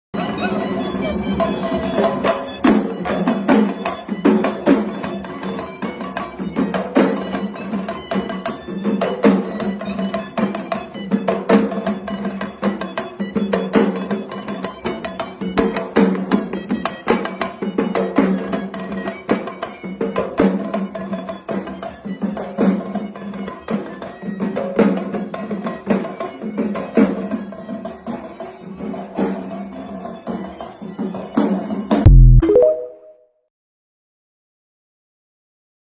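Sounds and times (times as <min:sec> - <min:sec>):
sharp percussion hits: 0:32.1 - 0:33.2.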